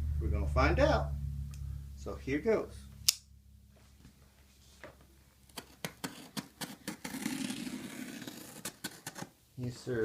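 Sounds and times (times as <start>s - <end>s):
packaging tearing and scraping: 5.6s - 9.3s.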